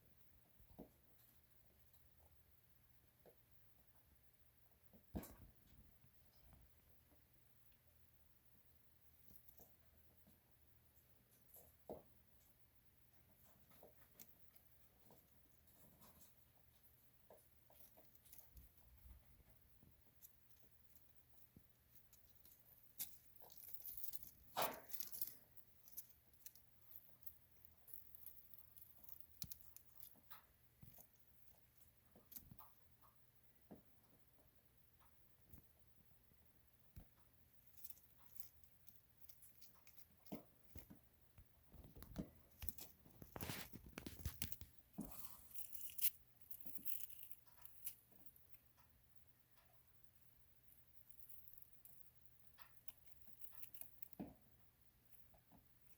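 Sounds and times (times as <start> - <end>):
shedding skin crackling and tearing: 22.0 - 30.1, 41.9 - 46.2.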